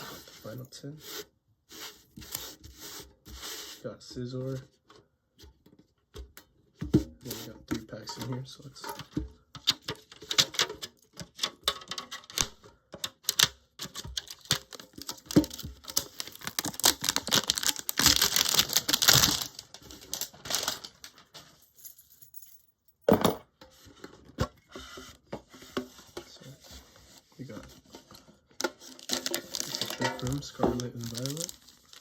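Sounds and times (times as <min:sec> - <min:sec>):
metal tin clicks and rattles: 0:08.1 - 0:16.1, 0:29.1 - 0:31.5
packaging rustling: 0:13.8 - 0:21.4, 0:28.6 - 0:32.0.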